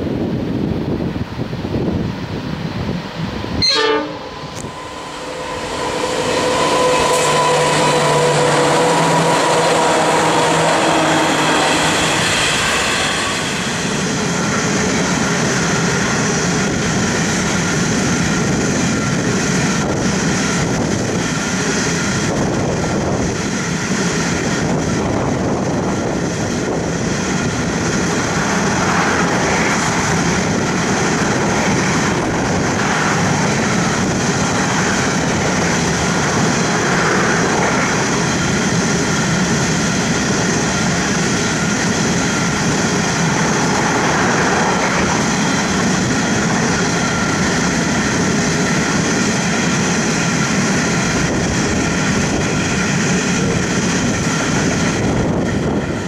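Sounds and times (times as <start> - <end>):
diesel locomotive engine drone: 0.0 - 56.0
rumble of wheels on rail: 0.0 - 56.0.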